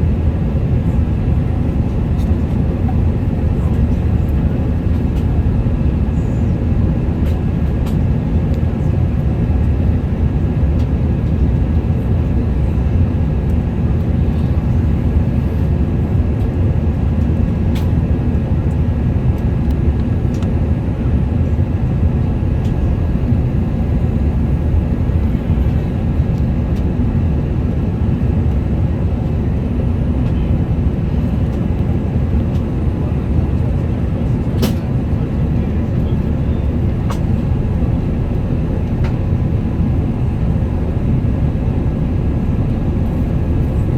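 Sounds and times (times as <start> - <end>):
jet engine cabin rumble: 0.0 - 43.9
faint steady whine: 35.0 - 43.9.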